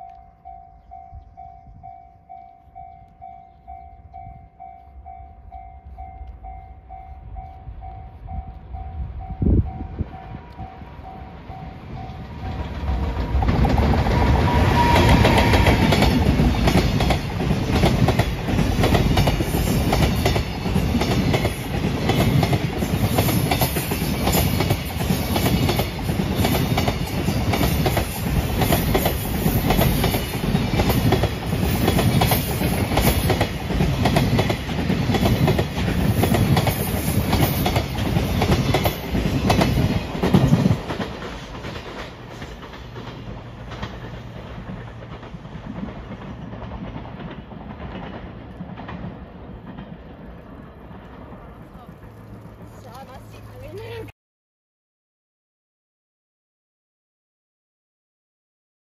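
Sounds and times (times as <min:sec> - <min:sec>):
train wheels clattering over rail joints: 0:12.6 - 0:53.1.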